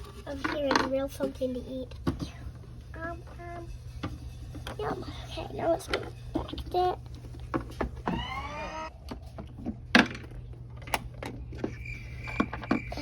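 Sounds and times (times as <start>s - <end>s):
short rising squeal: 8.1s - 8.9s.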